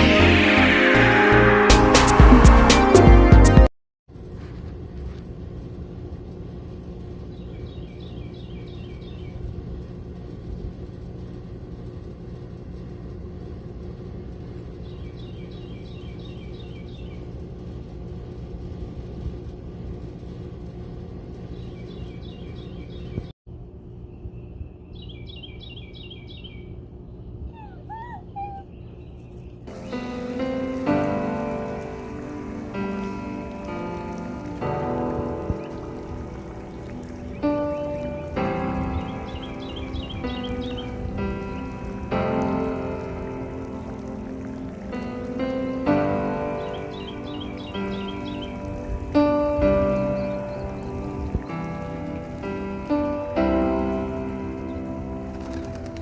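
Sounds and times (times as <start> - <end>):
low rumbling background noise: 4.1 - 56.0
small bird chirping: 14.8 - 17.3, 24.0 - 33.6, 35.7 - 42.1, 46.5 - 51.4.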